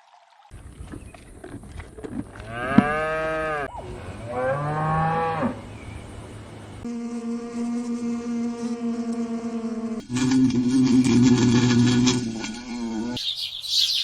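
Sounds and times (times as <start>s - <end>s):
cow mooing: 2.4s - 5.7s.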